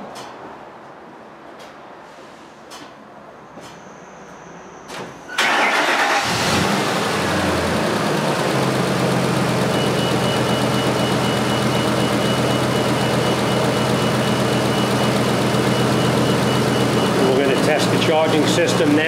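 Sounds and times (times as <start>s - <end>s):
truck engine idling: 5.4s - 19.0s.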